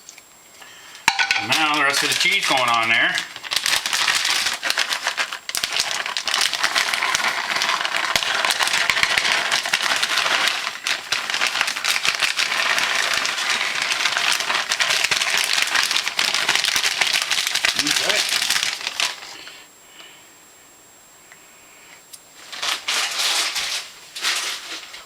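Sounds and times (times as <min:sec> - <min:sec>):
food sizzling in a pan: 0:01.0 - 0:19.4.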